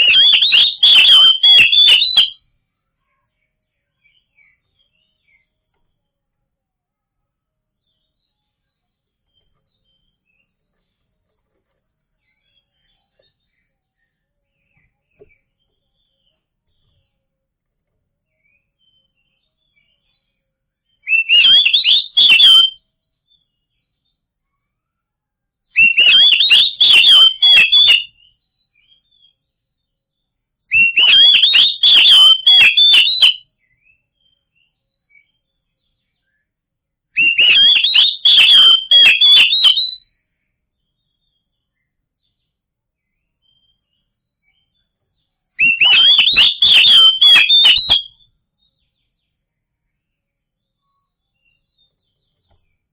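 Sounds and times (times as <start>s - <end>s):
bird whistled song: 0.0s - 2.5s, 18.3s - 23.8s, 25.8s - 29.5s, 30.7s - 36.5s, 37.2s - 40.2s, 45.6s - 49.3s.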